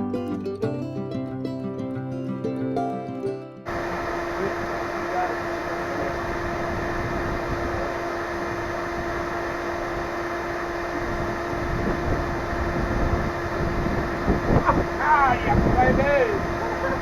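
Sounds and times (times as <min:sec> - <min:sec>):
steady mechanical hum: 0:03.7 - 0:17.0.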